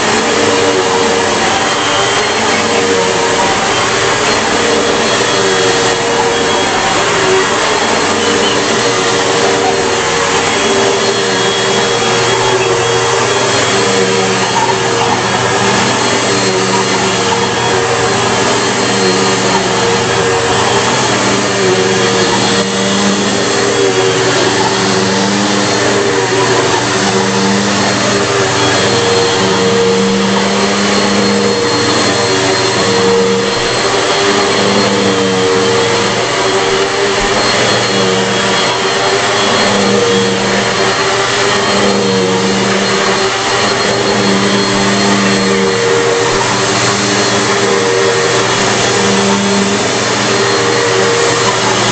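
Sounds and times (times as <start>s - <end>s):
upright vacuum cleaner running: 0.0s - 51.9s.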